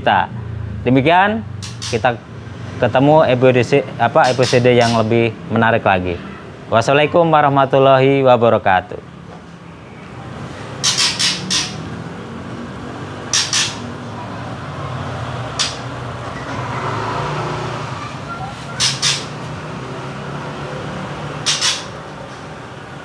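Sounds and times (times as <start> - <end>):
bird chirping: 4.2 - 5.1, 9.5 - 12.1, 13.1 - 14.5, 15.5 - 19.7, 21.2 - 22.3
steady background hum: 7.6 - 16.6.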